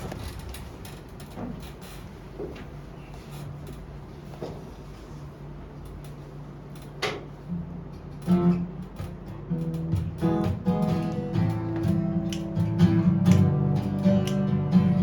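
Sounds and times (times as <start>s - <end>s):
acoustic guitar strumming chords: 8.3s - 15.0s.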